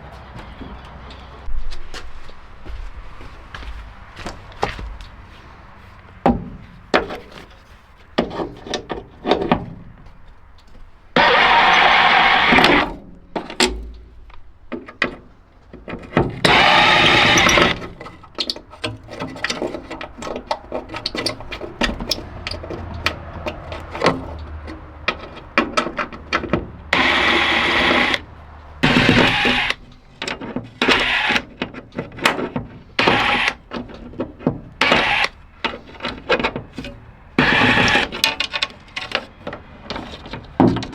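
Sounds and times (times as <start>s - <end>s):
power tool short bursts: 11.2s - 12.8s, 16.4s - 17.8s, 28.8s - 29.8s, 33.0s - 33.6s
clicks taps and knocks: 17.7s - 40.9s.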